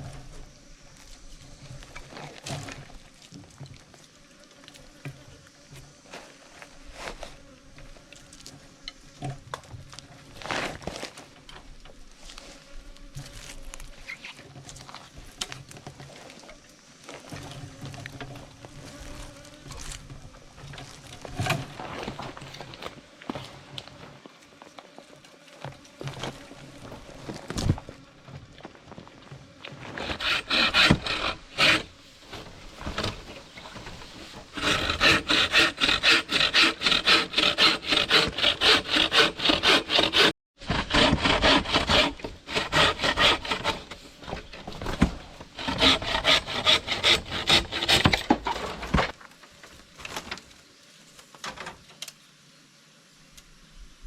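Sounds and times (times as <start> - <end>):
hand saw cutting wood: 29.8 - 49.2.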